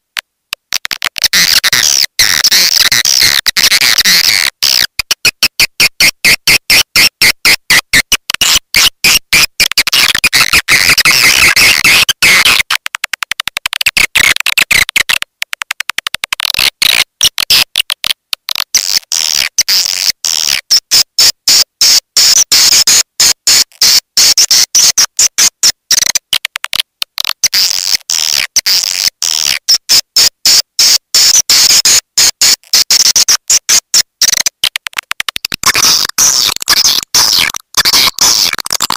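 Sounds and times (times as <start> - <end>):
rapid bird chirps and clicks: 0.6 - 38.9.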